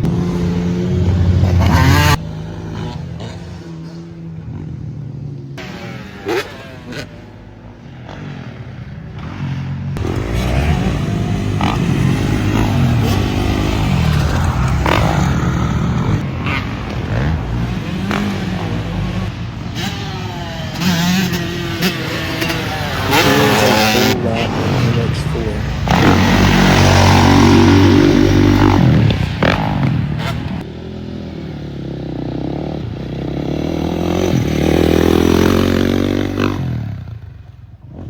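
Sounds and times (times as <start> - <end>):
off-road vehicle engine revving: 0.0 - 4.1, 9.2 - 30.7.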